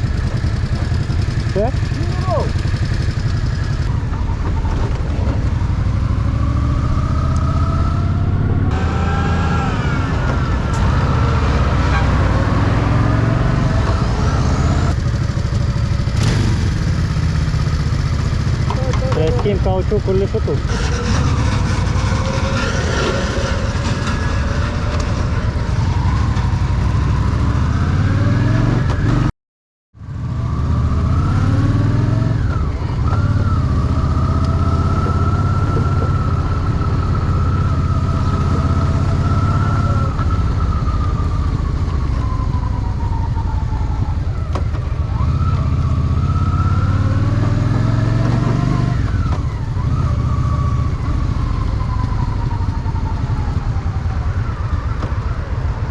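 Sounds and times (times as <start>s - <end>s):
motorcycle engine running: 0.0s - 8.9s, 14.9s - 28.2s.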